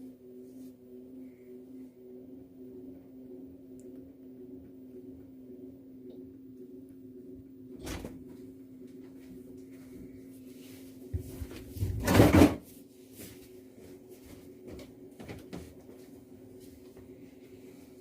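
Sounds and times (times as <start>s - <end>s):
washing machine motor hum: 0.0s - 18.0s
washing machine clunk: 7.8s - 8.3s, 11.9s - 12.6s
washing machine knock: 12.0s - 12.6s.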